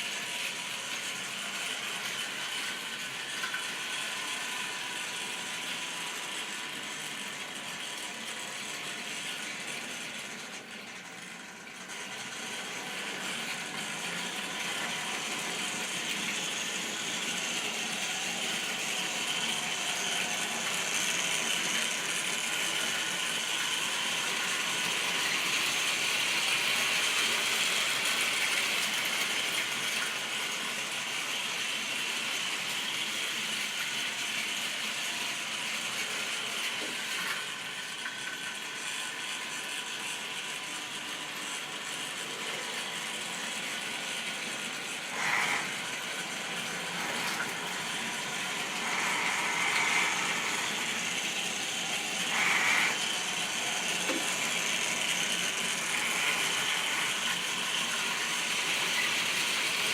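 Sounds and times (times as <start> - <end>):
model train rattling on track: 0.0 - 59.9.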